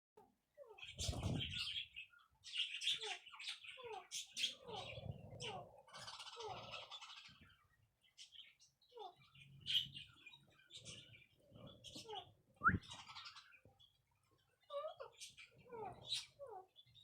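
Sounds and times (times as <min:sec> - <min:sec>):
parrots chirping and squawking: 0:00.6 - 0:17.0.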